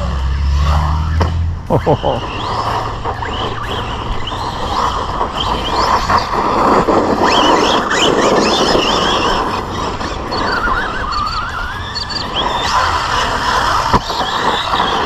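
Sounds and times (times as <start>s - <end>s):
tyres rushing on ground: 0.0s - 15.0s
rc truck motor whine: 1.8s - 15.0s.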